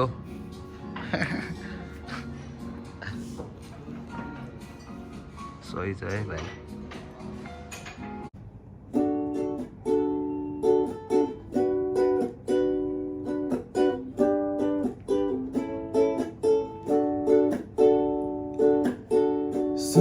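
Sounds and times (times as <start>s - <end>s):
strummed acoustic chords: 8.8s - 20.0s.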